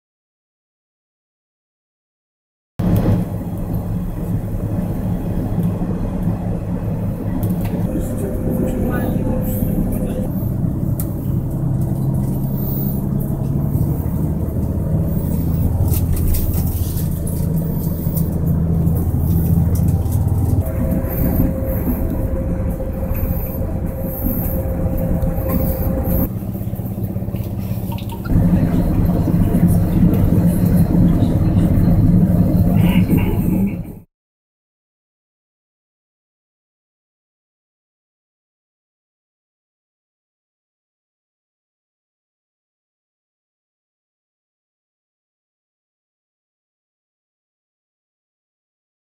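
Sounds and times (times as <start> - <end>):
train drive hum: 2.8 - 34.1
train rumbling: 2.8 - 34.1.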